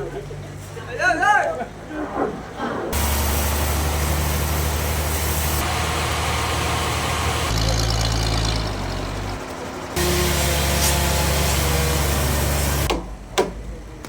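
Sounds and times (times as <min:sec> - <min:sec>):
sawmill machinery running: 0:02.9 - 0:12.9.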